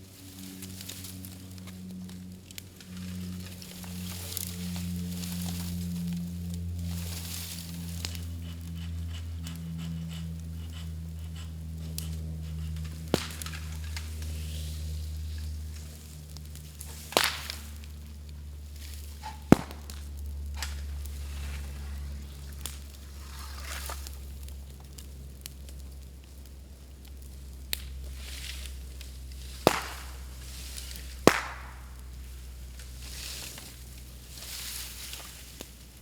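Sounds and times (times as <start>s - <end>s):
bonfire crackling: 0.0s - 36.0s
low steady hum: 0.0s - 36.0s
bamboo bursting pops: 10.6s - 14.3s, 16.3s - 17.9s, 19.2s - 20.9s, 29.4s - 33.0s.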